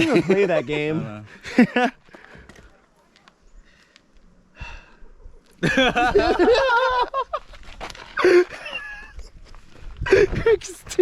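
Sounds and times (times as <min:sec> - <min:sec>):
person's wavering wordless vocal: 0:10.5 - 0:11.0
short vocal burst: 0:10.6 - 0:11.0.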